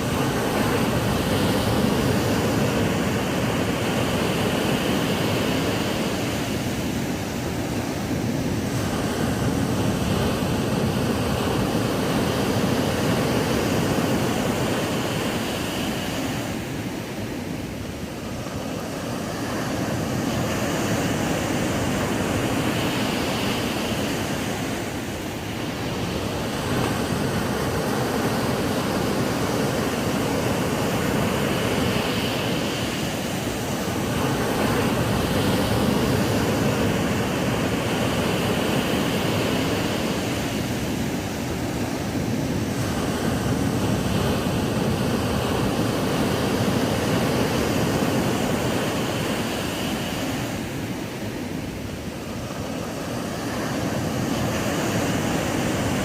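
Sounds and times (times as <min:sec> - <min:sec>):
ocean waves breaking on beach: 0:00.0 - 0:56.0.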